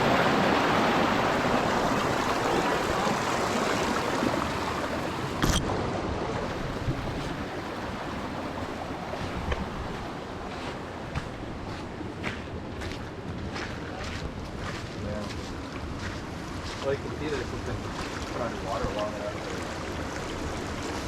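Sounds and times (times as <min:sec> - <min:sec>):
water rushing: 0:00.0 - 0:13.6, 0:16.3 - 0:21.0.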